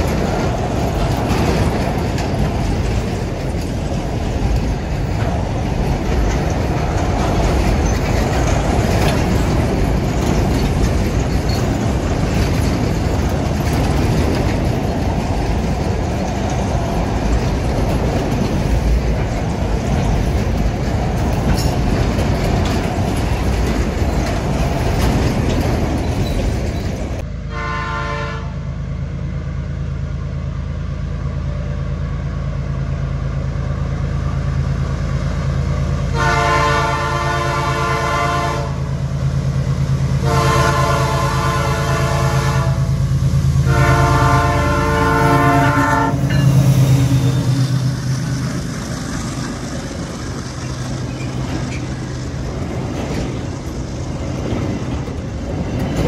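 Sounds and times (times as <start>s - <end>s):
diesel locomotive engine hum: 0.0s - 56.0s
freight cars rumbling past: 0.0s - 56.0s
train horn blasts: 27.4s - 28.6s, 36.1s - 38.9s, 40.2s - 43.0s, 43.6s - 46.5s.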